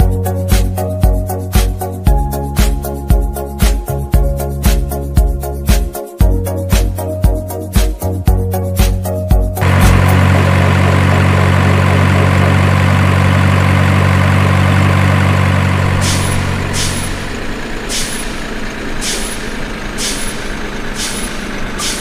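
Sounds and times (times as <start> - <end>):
diesel truck engine droning: 9.6 - 22.0
air brake hisses: 16.0 - 22.0.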